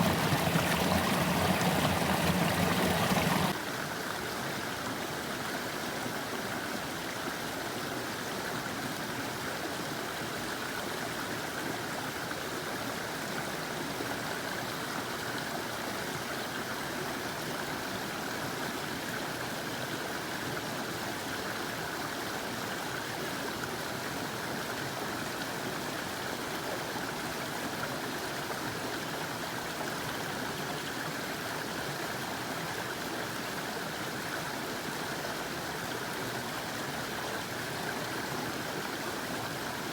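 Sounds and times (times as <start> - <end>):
creek waterfall rushing: 0.0 - 3.6.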